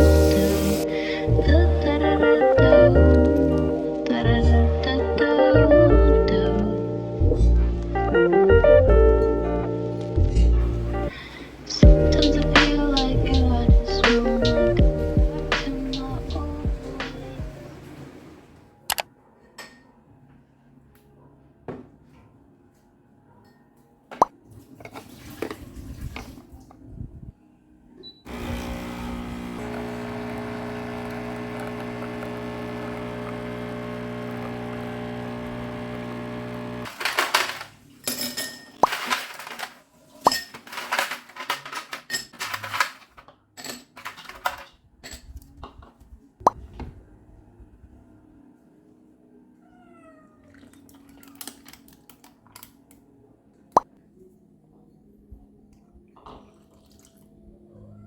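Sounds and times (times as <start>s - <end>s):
kitchen appliance humming: 28.3s - 37.6s
kitchen clicks and knocks: 36.9s - 45.3s.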